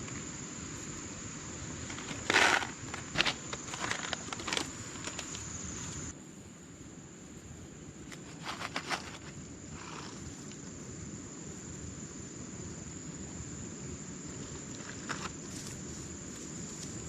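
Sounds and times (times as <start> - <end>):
insects droning: 0.0 - 17.0
rustling clicks: 1.9 - 6.0.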